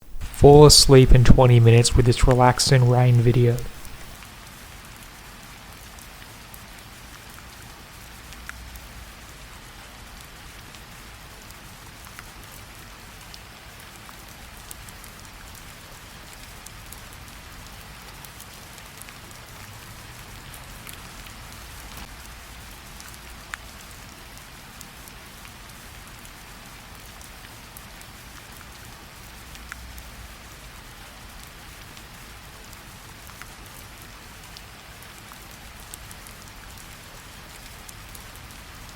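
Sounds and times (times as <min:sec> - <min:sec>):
drops ticking: 0:00.0 - 0:04.2.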